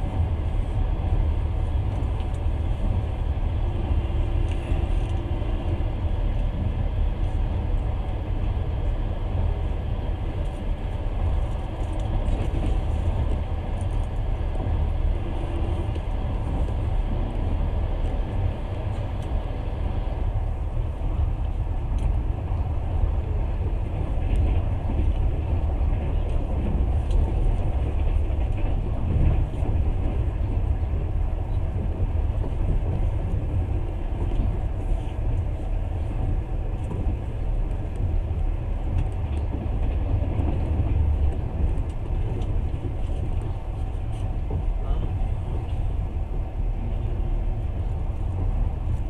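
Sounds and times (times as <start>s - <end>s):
train rumbling on rails: 0.0s - 49.0s.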